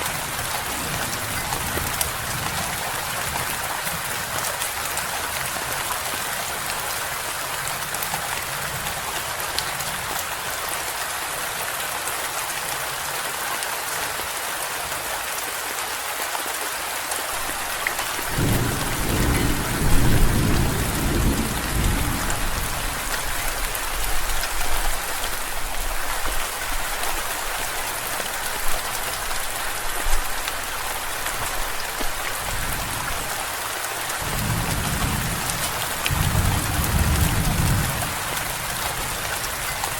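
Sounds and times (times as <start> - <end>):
heavy rain: 0.0 - 39.9
thunder rumbling: 18.2 - 23.6, 34.2 - 39.2.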